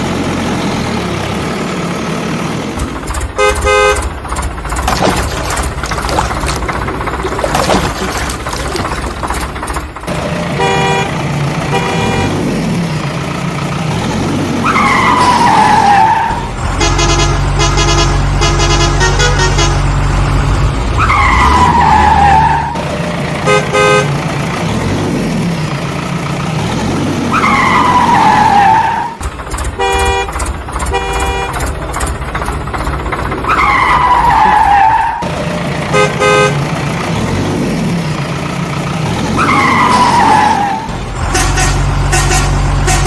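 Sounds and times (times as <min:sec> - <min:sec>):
cartoon horn toots: 0:16.8 - 0:19.8, 0:41.3 - 0:43.0.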